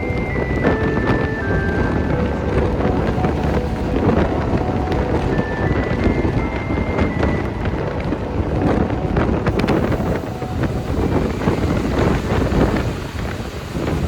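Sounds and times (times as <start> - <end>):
train rumbling on rails: 0.0 - 14.0
high wheel squeal: 9.5 - 14.0.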